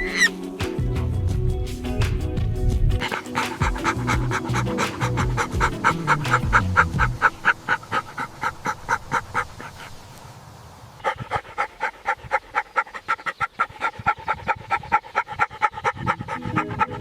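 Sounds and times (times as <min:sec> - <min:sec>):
animal panting rapidly: 0:03.0 - 0:10.2, 0:11.0 - 0:17.0.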